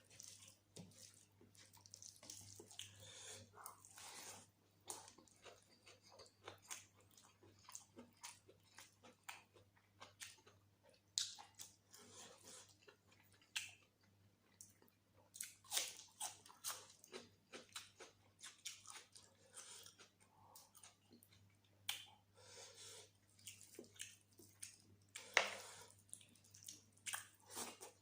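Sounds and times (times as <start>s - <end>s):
chewing and mouth smacks: 0.1s - 11.8s, 12.6s - 22.2s, 23.2s - 28.0s.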